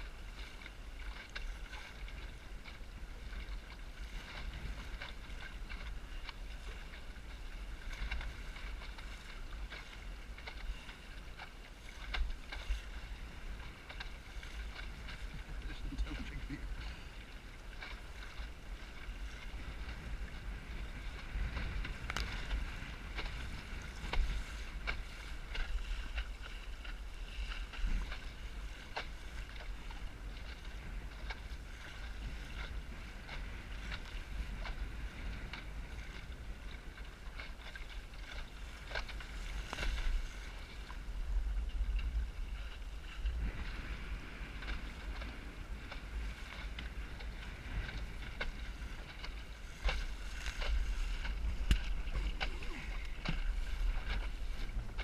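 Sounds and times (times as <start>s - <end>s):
wind on microphone: 0.0s - 55.0s
sharp ticks and knocks: 51.6s - 52.0s.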